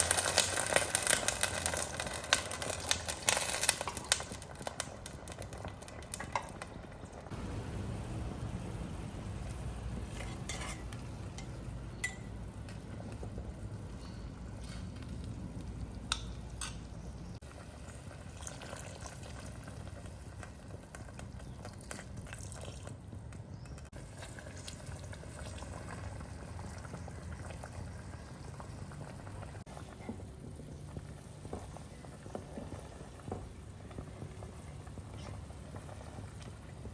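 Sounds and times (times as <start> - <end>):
food frying in a pot: 0.0 - 36.9
utensil clinking against pot: 10.2 - 12.4.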